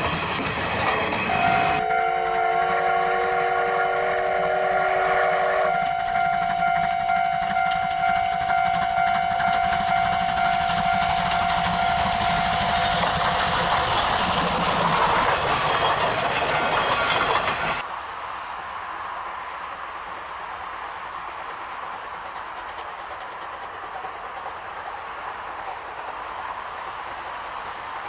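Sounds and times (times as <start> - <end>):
steady high tone: 0.0 - 17.8
steam exhaust hiss: 0.0 - 17.8
rail noise with regular pulse: 0.0 - 28.0.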